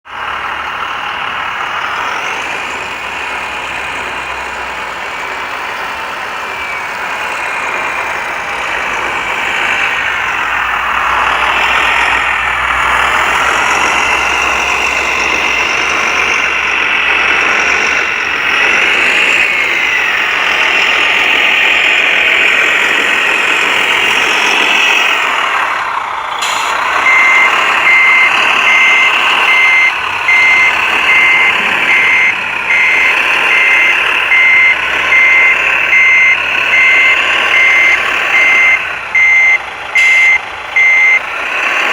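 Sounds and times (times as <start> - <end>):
reversing beeper: 0.3 - 41.9.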